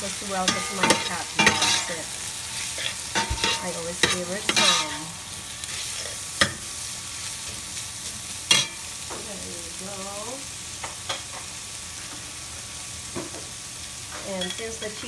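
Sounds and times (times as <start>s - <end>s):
food sizzling in hot oil: 0.0s - 15.0s
metal spoon clinking on pot: 0.4s - 2.1s, 3.1s - 5.0s.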